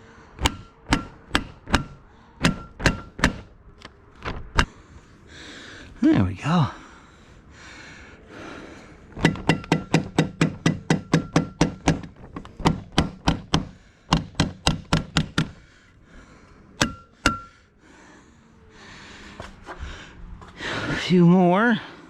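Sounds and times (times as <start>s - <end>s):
staple gun strikes into wood: 0.4s - 3.5s, 9.2s - 15.6s.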